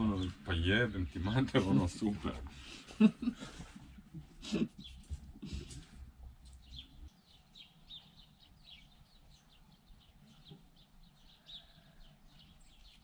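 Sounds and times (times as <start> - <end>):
faint bird chirps: 6.5 - 13.0.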